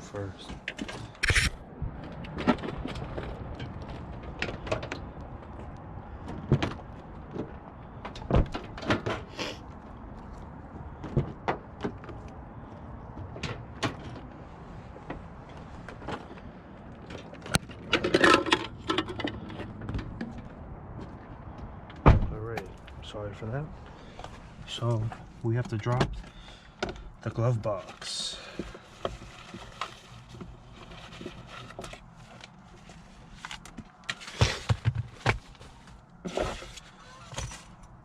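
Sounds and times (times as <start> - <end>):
objects knocking and rattling in a car: 0.2 - 9.3, 10.1 - 23.1, 23.9 - 38.0.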